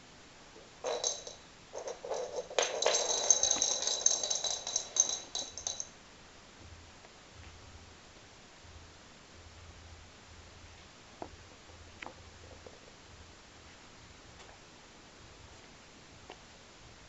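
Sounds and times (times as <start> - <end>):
toy rattling and jingling: 0.8 - 5.9.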